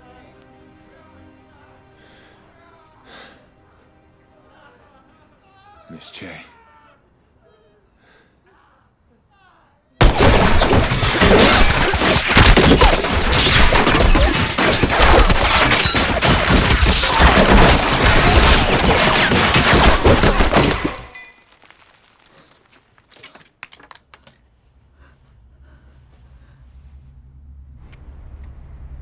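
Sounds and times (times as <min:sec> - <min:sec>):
heavy gunfire: 0:10.0 - 0:21.2
glass shattering: 0:10.0 - 0:22.5
things breaking: 0:10.0 - 0:24.0.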